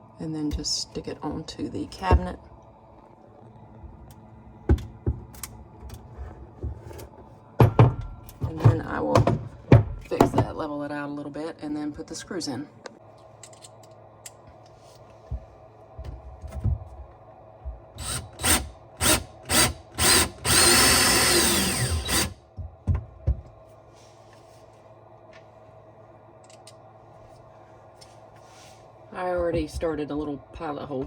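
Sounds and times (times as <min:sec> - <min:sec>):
power drill driving screws: 0:18.0 - 0:22.4.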